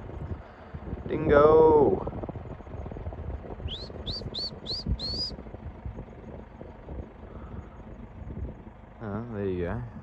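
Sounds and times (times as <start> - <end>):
wind on microphone: 0.0 - 10.0
bird whistling rising notes: 3.7 - 5.4.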